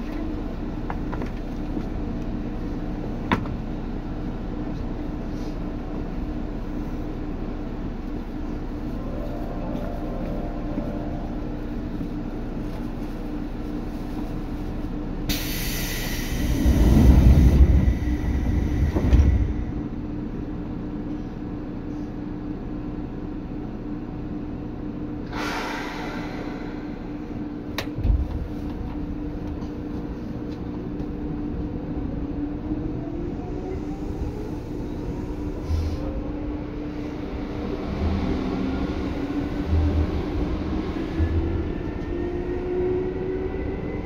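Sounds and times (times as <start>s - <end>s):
heavy rumble: 0.0s - 22.6s, 24.2s - 44.0s
electric train rumble and hum: 0.0s - 44.0s
air hiss: 15.3s - 19.6s, 25.3s - 27.3s
thump: 27.9s - 28.5s.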